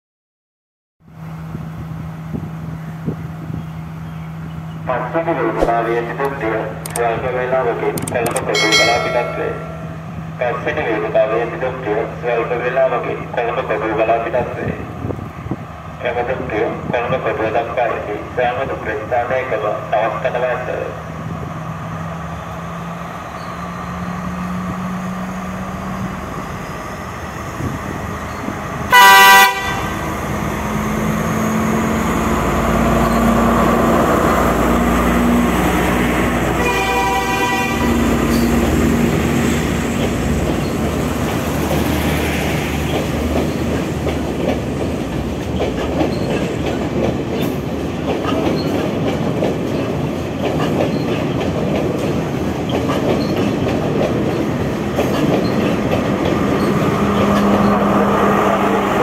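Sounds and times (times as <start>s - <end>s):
diesel train engine running: 17.8s - 59.0s
train horn blast: 28.9s - 30.0s, 36.6s - 38.2s
train wheels clacking: 39.8s - 58.0s.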